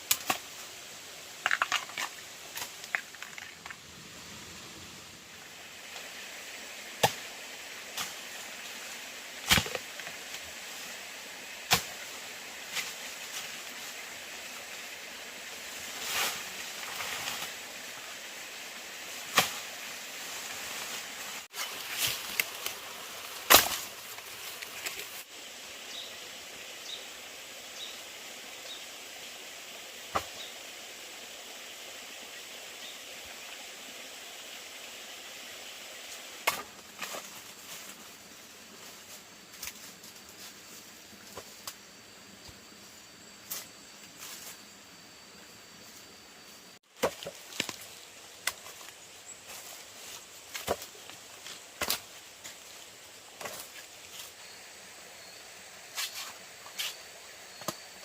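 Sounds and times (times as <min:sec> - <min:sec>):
outdoor hiss: 0:00.0 - 0:58.0.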